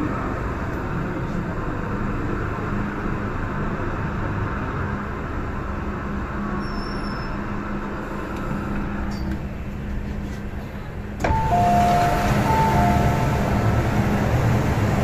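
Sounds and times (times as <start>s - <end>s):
train running with low hum: 0.0s - 15.0s
two-note door chime: 11.3s - 13.6s.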